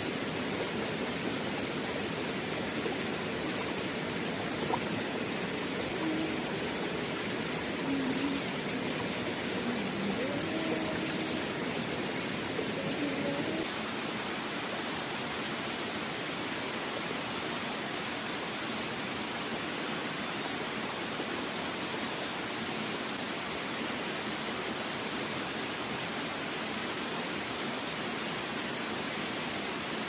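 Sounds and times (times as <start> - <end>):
river rushing: 0.0 - 19.6.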